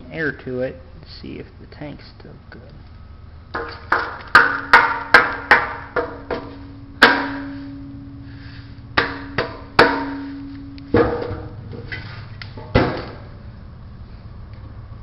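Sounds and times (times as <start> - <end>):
knocks on hollow steel tank: 3.6 - 7.6, 9.0 - 10.3, 11.0 - 11.6, 12.6 - 13.3.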